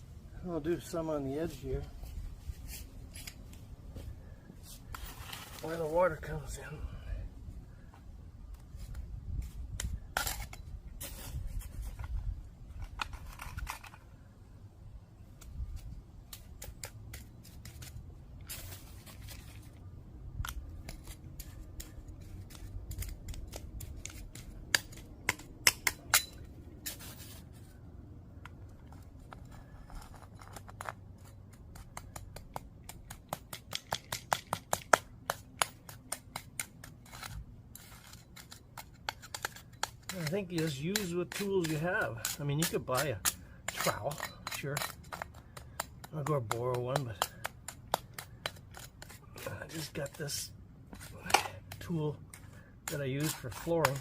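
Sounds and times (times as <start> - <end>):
gritty scrapes of asphalt: 0.7 - 6.8, 8.7 - 14.3, 16.4 - 19.9, 26.7 - 27.9, 28.8 - 31.4, 36.4 - 54.0
stones clicking against metal: 28.4 - 54.0.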